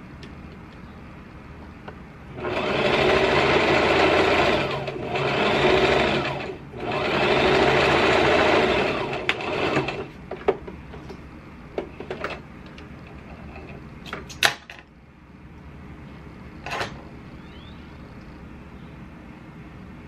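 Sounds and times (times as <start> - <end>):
sewing machine stitching: 2.4 - 10.1.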